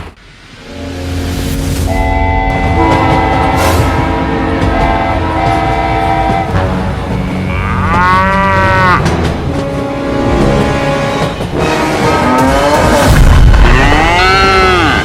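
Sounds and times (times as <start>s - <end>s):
held horn-like tones: 0.5s - 12.8s
cow mooing: 7.4s - 9.1s, 13.6s - 15.0s.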